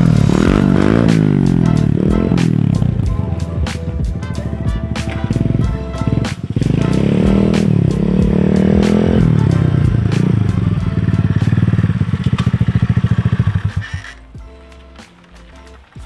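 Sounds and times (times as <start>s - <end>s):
motorbike engine revving: 0.0s - 3.2s, 4.5s - 14.4s
background music: 0.0s - 16.0s.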